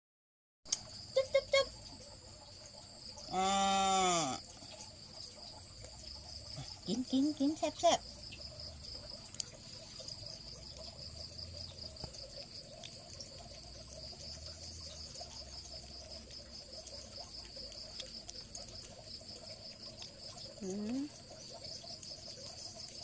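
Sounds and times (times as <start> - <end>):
insects trilling: 0.7 - 23.0
light ticks: 9.2 - 9.6.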